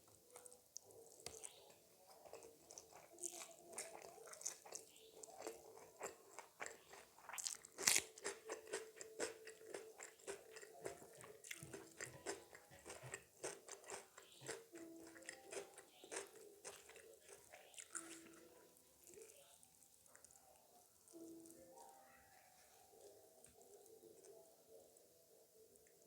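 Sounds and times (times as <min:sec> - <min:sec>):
wet chewing: 0:00.0 - 0:21.9
biting and crunching: 0:00.3 - 0:19.4.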